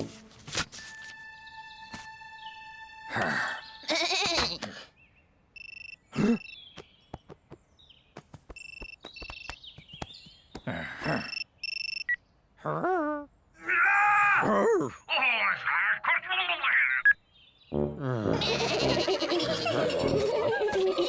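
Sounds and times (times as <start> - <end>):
farm animals bleating: 3.8 - 4.6, 18.3 - 20.0
short electronic beeps: 5.6 - 6.6, 8.6 - 9.6, 11.3 - 12.2.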